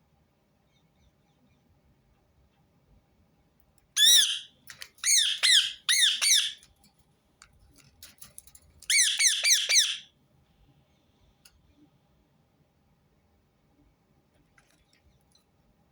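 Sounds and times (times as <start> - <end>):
parakeet screeching: 4.0 - 6.6, 8.9 - 10.1.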